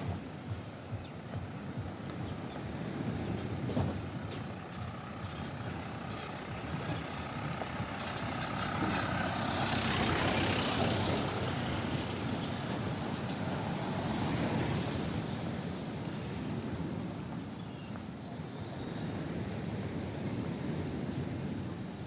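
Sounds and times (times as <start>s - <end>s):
vehicle engine running: 0.0s - 17.5s
steady outdoor hiss: 0.0s - 22.0s.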